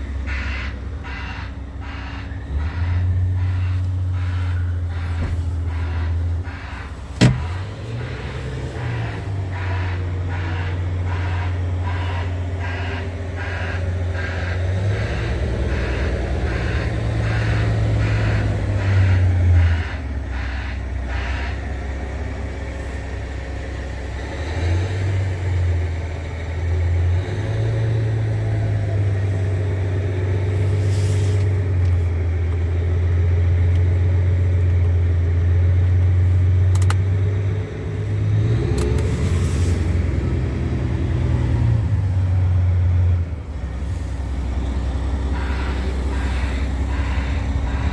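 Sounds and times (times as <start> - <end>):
diesel engine running: 0.0 - 47.9
regular ticking: 0.5 - 22.8, 31.4 - 41.5.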